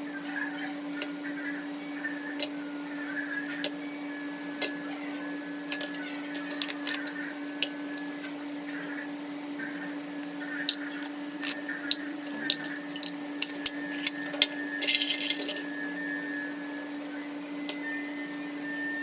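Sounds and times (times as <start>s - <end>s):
scratchy rubbing: 0.0s - 4.7s, 5.7s - 9.7s, 11.1s - 17.4s
small metal parts clicking: 0.0s - 17.8s
steady hum: 0.0s - 19.0s.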